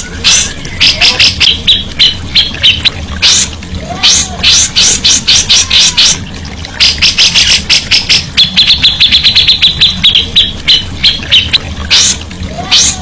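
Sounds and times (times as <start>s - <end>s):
songbird chirping: 6.8s - 12.1s.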